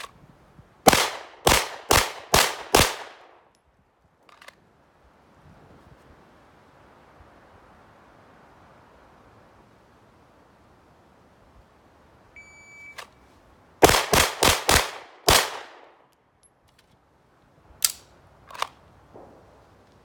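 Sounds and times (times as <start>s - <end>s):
rapid handgun shots: 0.9s - 3.4s, 13.8s - 15.9s.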